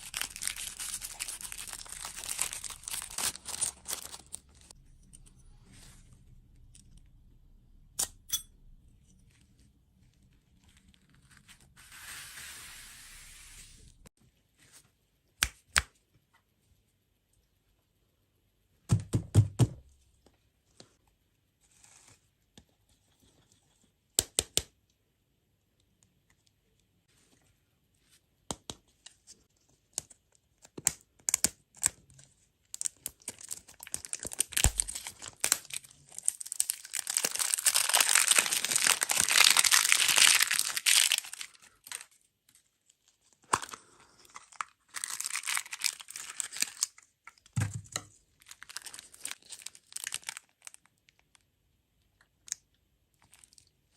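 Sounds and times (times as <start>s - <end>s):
packaging crinkling and tearing: 0.0s - 4.7s, 32.7s - 42.2s, 43.0s - 47.4s, 48.4s - 51.4s.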